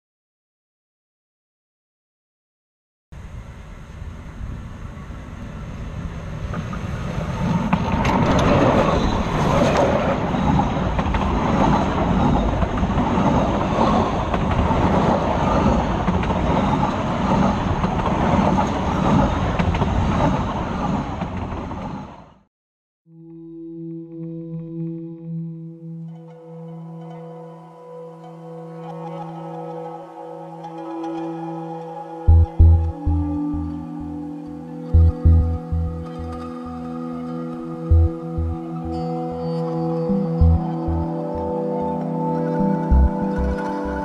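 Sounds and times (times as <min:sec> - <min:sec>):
train rumbling on rails: 0:03.2 - 0:22.4.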